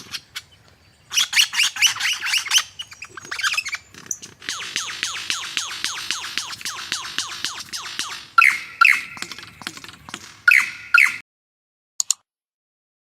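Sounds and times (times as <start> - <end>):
lyrebird song: 0.0 - 11.2
steady high tone: 4.6 - 9.4.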